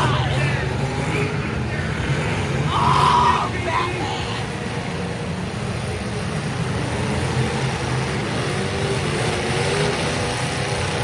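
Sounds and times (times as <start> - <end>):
vehicle engines rumbling: 0.0 - 11.0.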